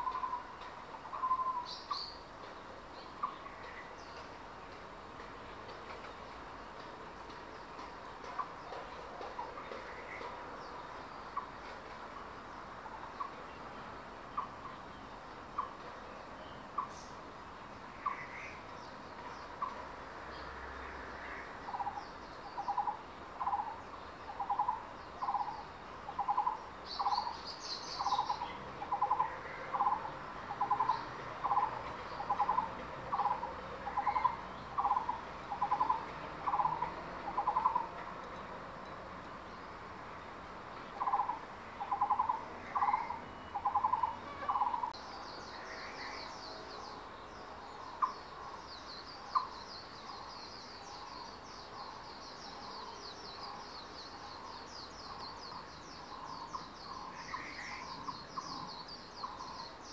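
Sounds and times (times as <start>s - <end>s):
bird calling: 0.0s - 2.2s, 22.6s - 38.0s, 41.0s - 45.0s
bird chattering: 24.4s - 37.9s, 41.0s - 45.0s.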